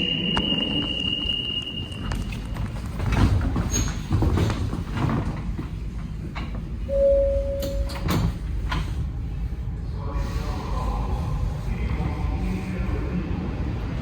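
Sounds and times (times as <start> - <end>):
metro train rumble: 0.0 - 14.0
knocks and clatters: 2.1 - 6.8
short steady tone: 6.9 - 8.0.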